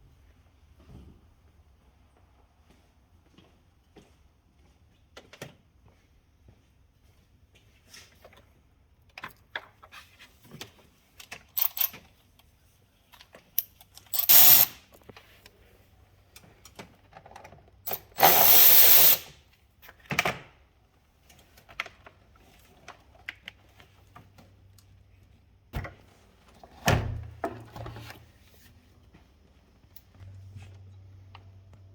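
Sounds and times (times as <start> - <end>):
power tool bursts: 14.1 - 14.8, 17.9 - 19.3.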